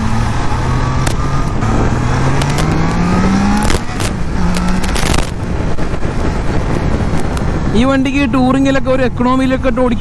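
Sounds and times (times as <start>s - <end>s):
motorcycle engine accelerating: 0.0s - 8.0s.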